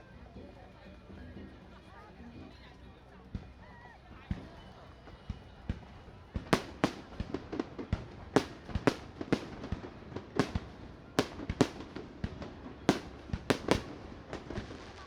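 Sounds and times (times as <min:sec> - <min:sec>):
fireworks bangs: 0:06.4 - 0:15.0.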